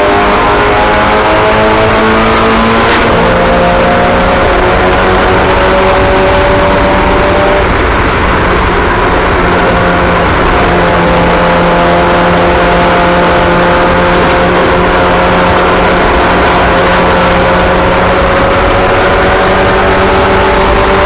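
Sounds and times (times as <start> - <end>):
race car engines at speed: 0.0 - 21.0.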